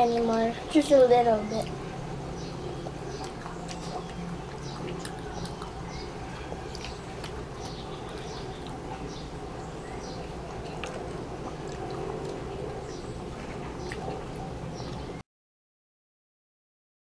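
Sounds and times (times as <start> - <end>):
steady low hum: 0.0 - 15.2
child chewing: 3.1 - 9.2.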